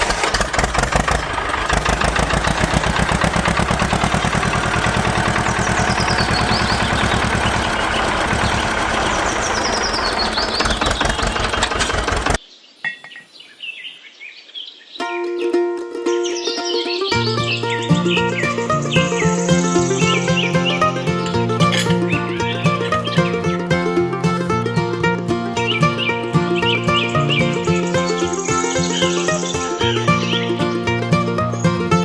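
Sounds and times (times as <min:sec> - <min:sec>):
machine engine running: 0:00.6 - 0:10.4
faint bird chirps: 0:25.6 - 0:30.8.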